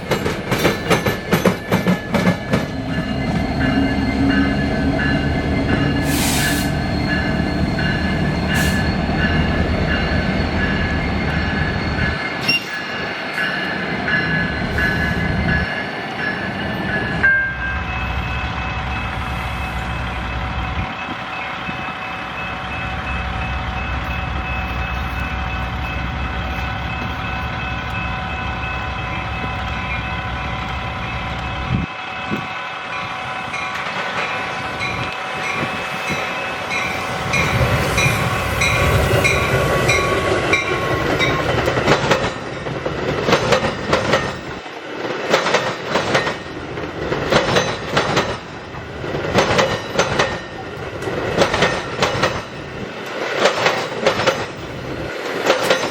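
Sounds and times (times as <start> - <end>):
train wheels clicking over rail joints: 0.0 - 17.3, 33.6 - 55.9
locomotive drone: 0.0 - 55.9.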